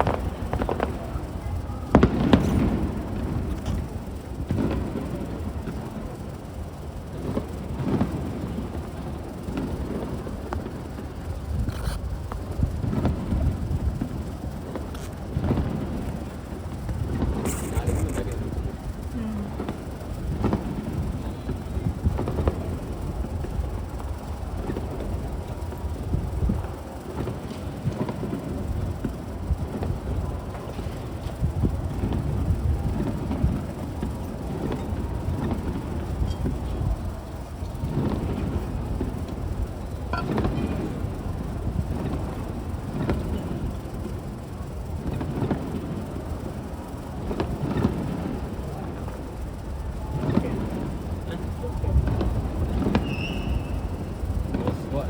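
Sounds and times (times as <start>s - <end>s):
sharp firework booms: 0.0s - 6.1s
low rumble of echoing bursts: 0.0s - 27.1s
fireworks booms: 0.0s - 44.2s, 44.9s - 49.2s, 50.1s - 55.0s
fireworks rumble: 0.0s - 55.0s.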